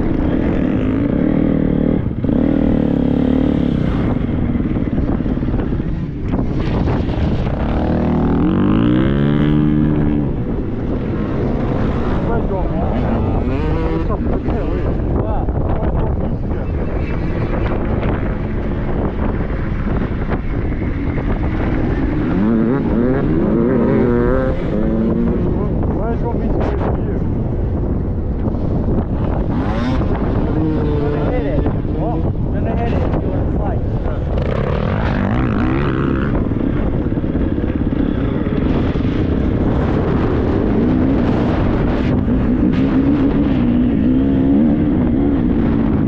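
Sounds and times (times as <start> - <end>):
motorbike engine revving: 0.0 - 16.1, 17.1 - 26.4, 28.8 - 46.0
wind noise on microphone: 0.0 - 46.0.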